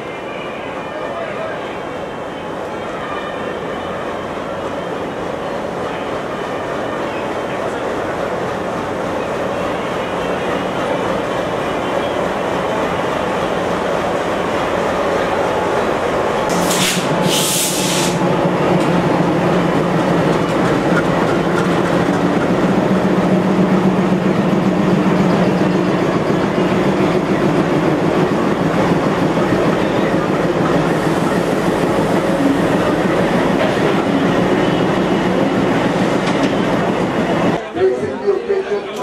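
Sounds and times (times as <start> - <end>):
diesel train engine: 0.0 - 39.0
train running noise: 0.0 - 39.0
short hissing bursts: 16.5 - 18.2.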